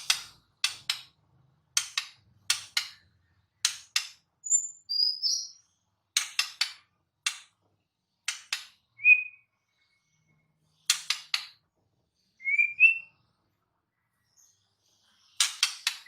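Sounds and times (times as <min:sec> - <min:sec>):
bird singing rasping notes and whistles: 0:02.5 - 0:06.5, 0:08.8 - 0:11.4, 0:12.2 - 0:13.4.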